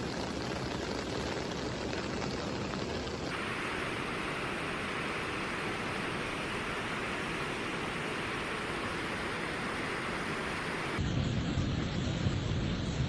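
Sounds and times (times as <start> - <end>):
floodwater rushing: 3.3 - 11.0
bright hiss: 3.3 - 11.4.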